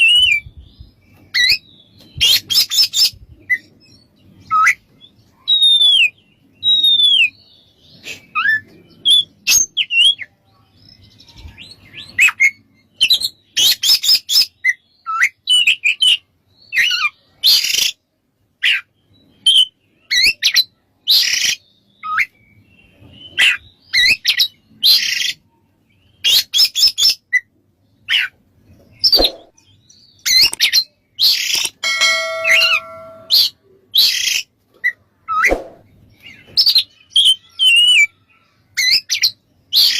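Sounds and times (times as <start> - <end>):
bird singing whistled notes: 0.0 - 10.2, 29.0 - 34.4
harsh scratchy bird chatter: 29.0 - 29.5, 30.3 - 31.8
buzzy bird phrase: 31.8 - 33.6.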